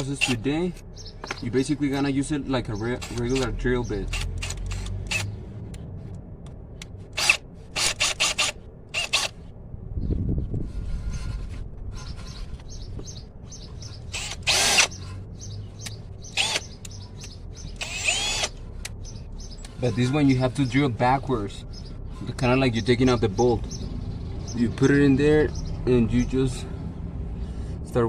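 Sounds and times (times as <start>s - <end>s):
power drill bursts: 14.1s - 14.9s, 16.4s - 16.7s, 17.8s - 18.5s
drill bit clicking: 14.2s - 14.9s, 17.8s - 18.5s.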